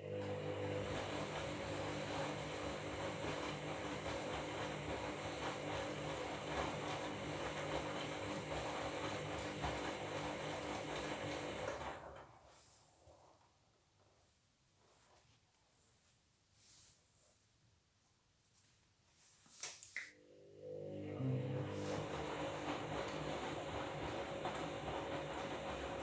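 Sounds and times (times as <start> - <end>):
washing machine running: 0.0 - 12.6, 20.2 - 26.0.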